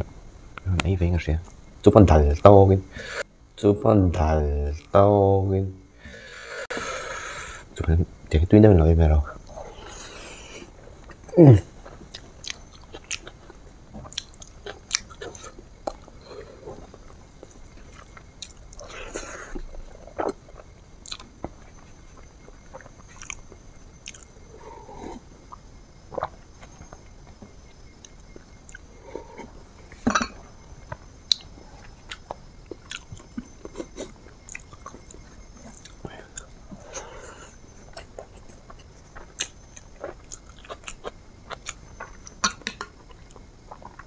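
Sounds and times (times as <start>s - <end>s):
person chewing crunchy food: 9.5s - 30.0s, 30.8s - 44.0s.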